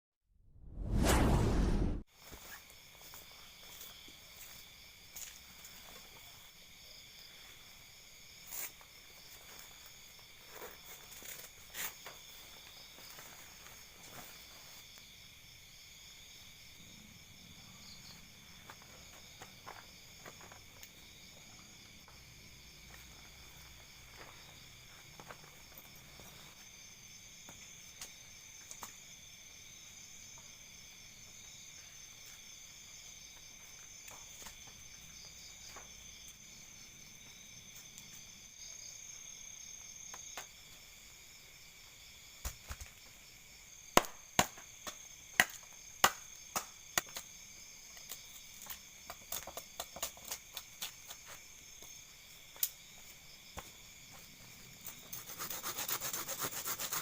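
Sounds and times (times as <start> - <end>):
crickets chirring: 2.2 - 57.0
rasping rub: 55.1 - 57.0.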